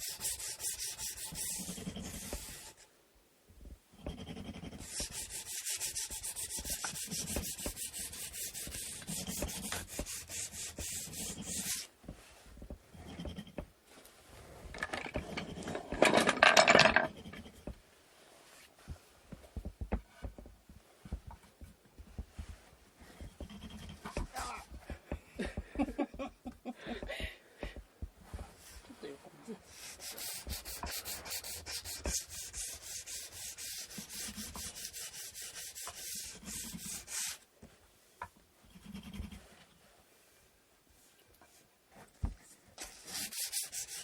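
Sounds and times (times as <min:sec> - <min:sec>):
sandpaper rubbing on wood: 0:00.0 - 0:02.8, 0:04.7 - 0:11.9, 0:29.7 - 0:37.4, 0:42.8 - 0:44.0.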